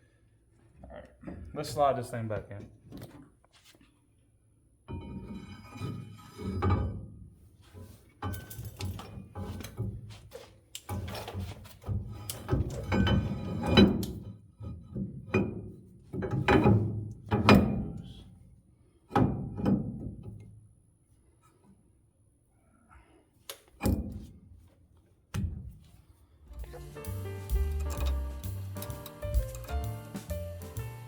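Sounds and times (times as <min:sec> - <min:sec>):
metal clunks and scrapes: 0:04.9 - 0:18.4, 0:19.1 - 0:20.4, 0:25.4 - 0:31.0.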